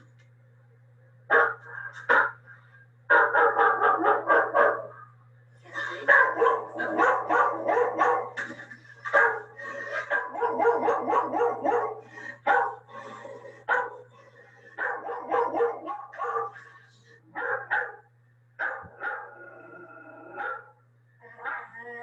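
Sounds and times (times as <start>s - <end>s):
steady low hum: 0.0s - 22.0s
dog barking: 1.3s - 2.4s, 3.1s - 5.0s, 6.0s - 8.4s, 9.1s - 12.9s, 13.6s - 14.1s, 14.8s - 16.7s, 17.3s - 19.3s, 20.4s - 20.8s.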